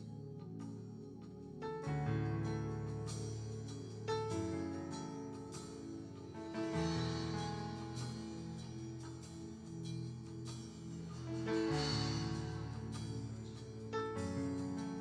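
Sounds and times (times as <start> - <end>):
bass notes: 6.7 - 15.0.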